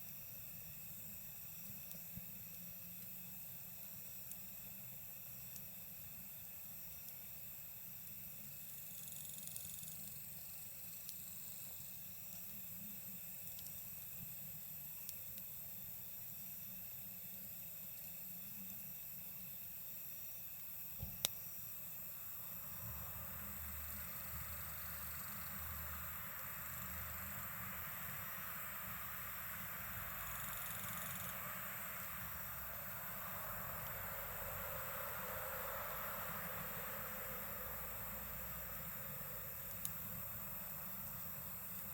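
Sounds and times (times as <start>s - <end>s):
night insects trilling: 0.0s - 41.9s
campfire popping: 0.6s - 19.8s, 20.5s - 22.7s, 38.8s - 41.9s.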